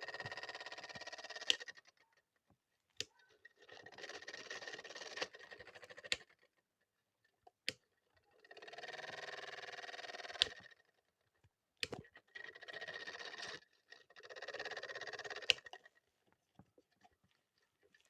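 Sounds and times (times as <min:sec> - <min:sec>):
small motor buzzing and rattling: 0:00.0 - 0:01.9, 0:03.2 - 0:06.4, 0:08.4 - 0:10.8, 0:12.2 - 0:15.8.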